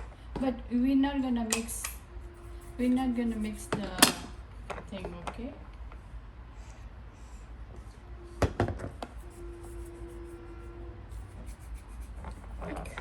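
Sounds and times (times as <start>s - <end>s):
short steady hum: 1.8s - 4.5s, 6.4s - 12.2s.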